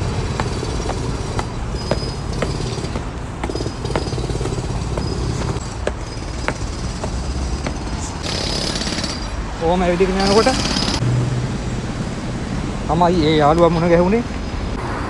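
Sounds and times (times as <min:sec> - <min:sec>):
footsteps walking: 0:00.0 - 0:08.3.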